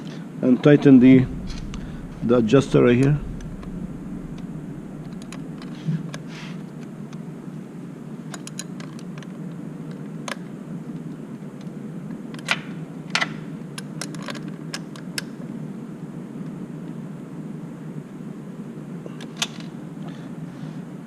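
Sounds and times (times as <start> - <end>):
low background hum: 0.8 - 7.1.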